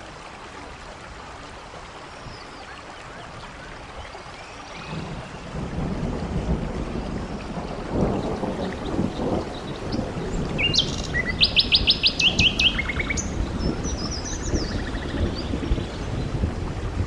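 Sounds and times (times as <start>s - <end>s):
rain hissing: 8.0s - 17.0s
songbird chirping: 8.2s - 16.3s.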